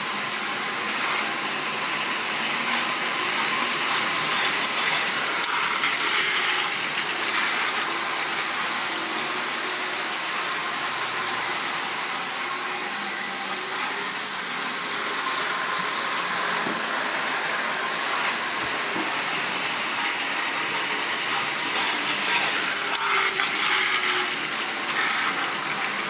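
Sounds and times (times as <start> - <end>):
model train whirring on track: 0.0 - 26.0.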